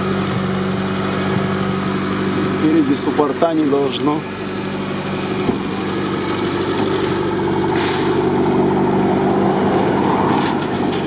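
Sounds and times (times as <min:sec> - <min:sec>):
vehicle engine idling: 0:00.0 - 0:11.0
trailer clattering and rattling: 0:09.6 - 0:11.0.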